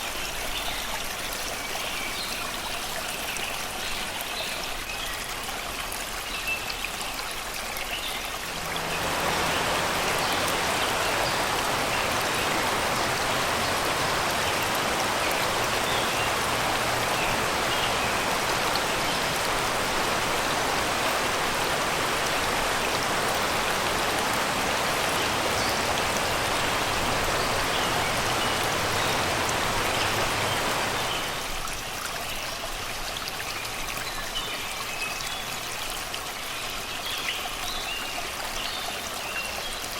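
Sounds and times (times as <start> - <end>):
water rushing over rocks: 0.0 - 39.9
faint birdsong chirps: 6.2 - 31.6.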